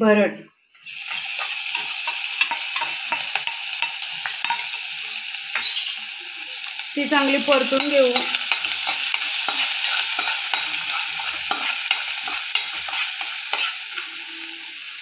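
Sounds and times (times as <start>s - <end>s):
paste sizzling in hot oil: 0.7s - 15.0s
metal spoon scraping a pan: 0.8s - 6.1s, 6.7s - 14.5s.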